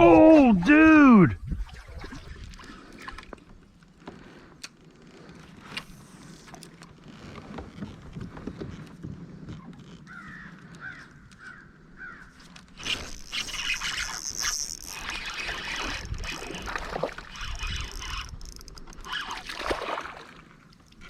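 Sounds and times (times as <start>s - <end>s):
crow-like bird calling: 10.1s - 12.4s
water splashing: 12.8s - 21.0s.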